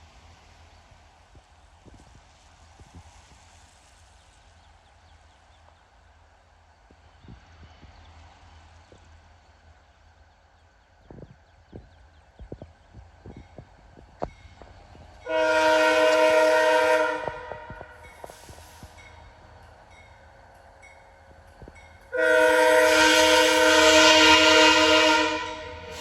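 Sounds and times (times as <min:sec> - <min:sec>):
locomotive air horn: 0:15.2 - 0:18.0, 0:22.1 - 0:26.0.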